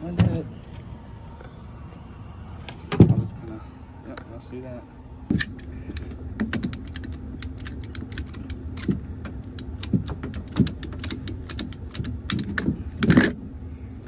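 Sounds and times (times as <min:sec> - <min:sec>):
faint steady hum: 0:00.0 - 0:14.0
hand tool cutting clicks: 0:05.3 - 0:13.3.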